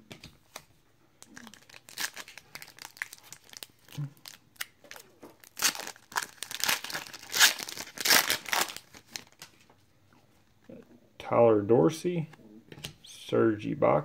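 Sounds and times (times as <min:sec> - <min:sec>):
plastic wrapper crinkling and tearing: 0:01.2 - 0:09.6.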